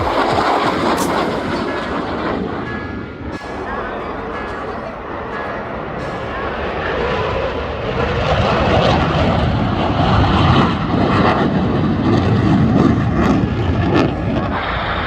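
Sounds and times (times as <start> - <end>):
aircraft engine flying past: 0.0 - 5.2, 5.8 - 15.0.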